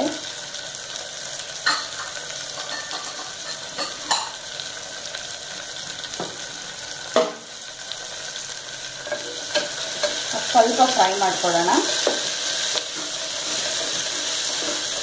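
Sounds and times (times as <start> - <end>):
vegetables sizzling in oil: 0.0 - 15.0
dishes clinking: 1.6 - 4.4.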